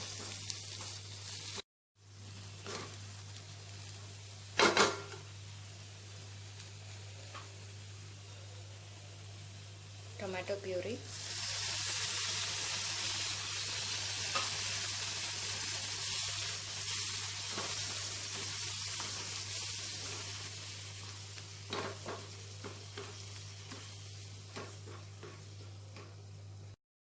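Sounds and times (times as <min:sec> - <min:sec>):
puree sizzling in a pan: 0:00.0 - 0:26.8.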